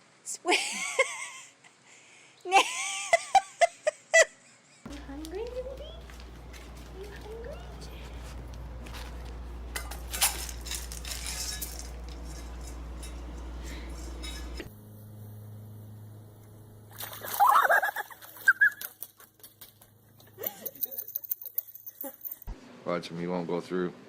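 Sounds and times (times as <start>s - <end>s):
steady low hum: 4.8s - 21.1s.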